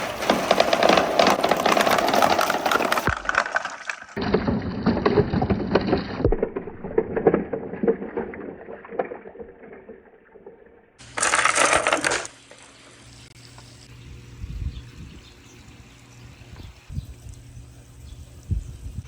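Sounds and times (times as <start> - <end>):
marbles clacking down a marble run: 0.0 - 8.2, 11.0 - 12.3.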